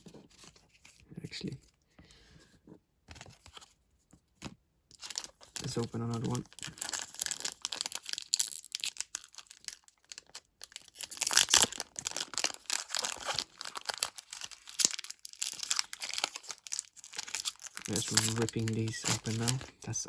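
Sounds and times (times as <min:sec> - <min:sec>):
foil wrapper tearing and crinkling: 0:05.0 - 0:19.9.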